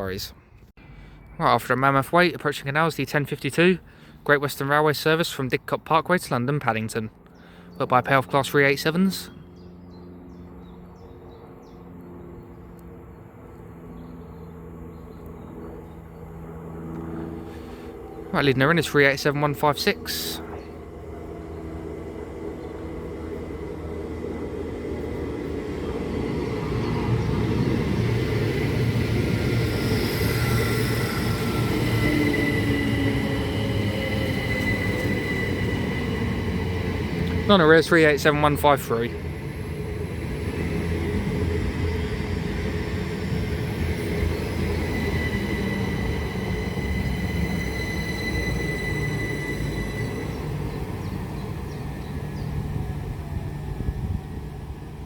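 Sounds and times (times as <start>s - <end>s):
electric trains rumbling and humming: 0.0s - 55.0s
thin high whine: 16.9s - 54.2s.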